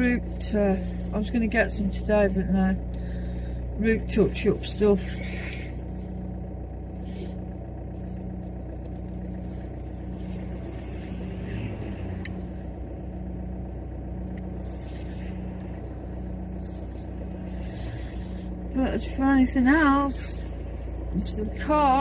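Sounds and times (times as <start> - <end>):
car engine and road noise: 0.0 - 22.0
click: 11.8 - 12.4.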